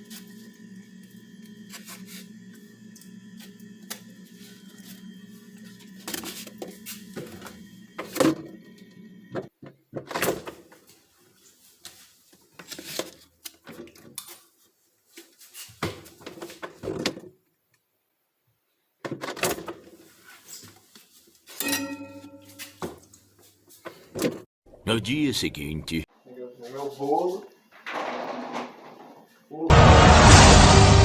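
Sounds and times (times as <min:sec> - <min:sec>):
door opening and closing: 0:27.8 - 0:29.3
low hum: 0:29.7 - 0:31.0.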